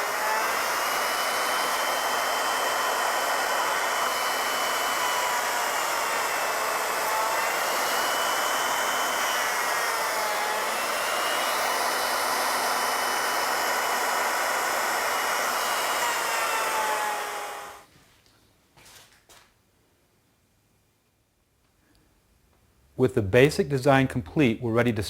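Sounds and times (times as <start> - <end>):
wood router cutting wood: 0.0 - 17.9.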